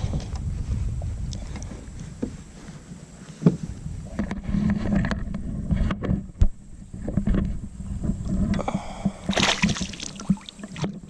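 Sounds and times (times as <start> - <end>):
water splashing from paddling: 9.3 - 11.0.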